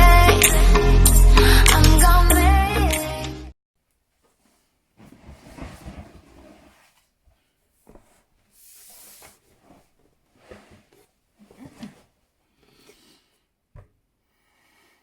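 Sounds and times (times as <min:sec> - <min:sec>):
person breathing close: 0:12.5 - 0:13.5.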